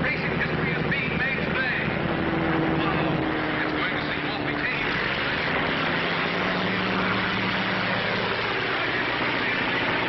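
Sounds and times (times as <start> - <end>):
propeller aeroplane engines droning: 0.0 - 10.0.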